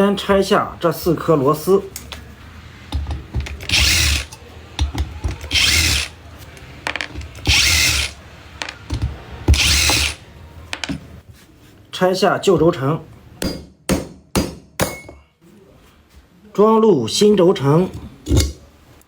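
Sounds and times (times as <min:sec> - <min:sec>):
power screwdriver running: 0:03.6 - 0:04.3, 0:05.5 - 0:06.2, 0:07.4 - 0:08.2, 0:09.6 - 0:10.2.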